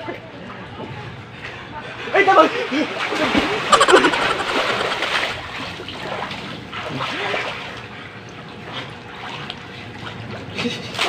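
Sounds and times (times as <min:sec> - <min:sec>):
pool water splashing: 0:02.8 - 0:07.9.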